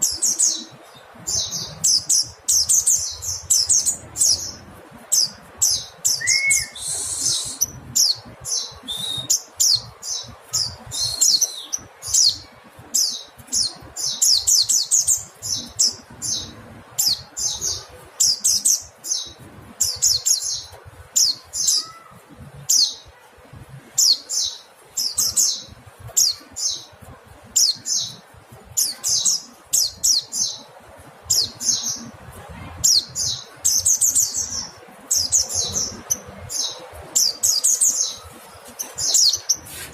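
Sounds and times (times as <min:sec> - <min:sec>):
bird high chirps: 0:00.0 - 0:23.2, 0:32.8 - 0:39.9.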